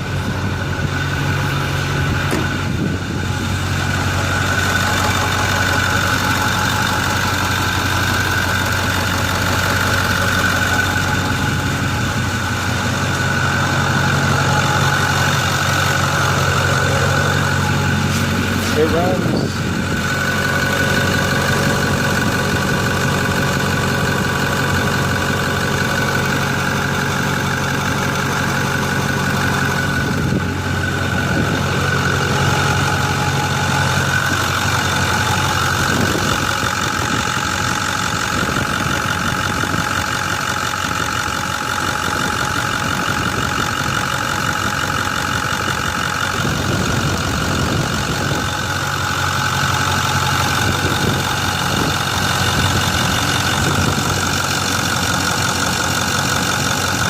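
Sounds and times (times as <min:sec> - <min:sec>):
turbo whine: 0:00.0 - 0:40.0
diesel engine idling: 0:00.0 - 0:57.0.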